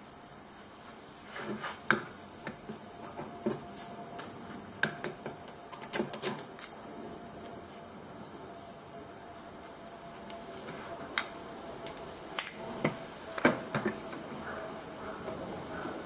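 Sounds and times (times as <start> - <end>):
light metallic clinks: 4.8 - 7.6, 11.2 - 15.8.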